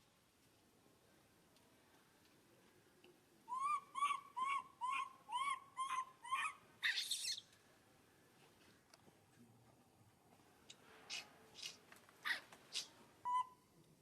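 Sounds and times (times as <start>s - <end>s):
animal calling: 3.5s - 7.4s, 11.1s - 13.6s.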